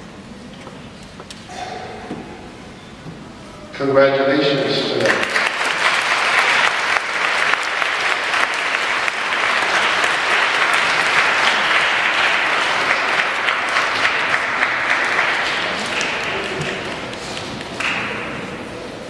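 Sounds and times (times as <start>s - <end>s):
audience applause: 4.4s - 19.0s.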